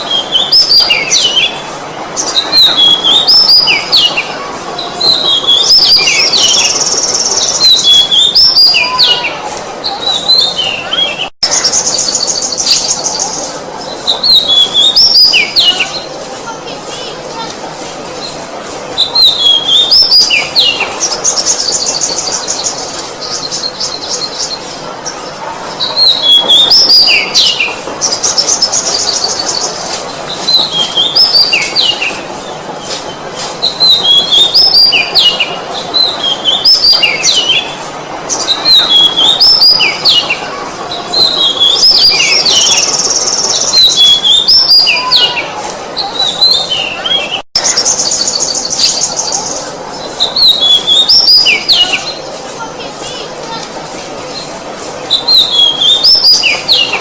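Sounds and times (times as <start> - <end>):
bird singing whistles and trills: 2.2 - 4.3, 10.0 - 16.0, 19.0 - 24.6, 33.6 - 37.8, 38.4 - 40.4, 41.1 - 45.4, 50.2 - 52.2, 55.1 - 57.0.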